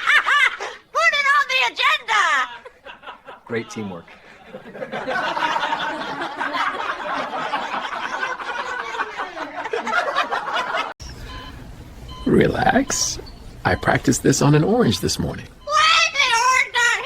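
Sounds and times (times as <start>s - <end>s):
people laughing and snickering: 2.4s - 11.0s.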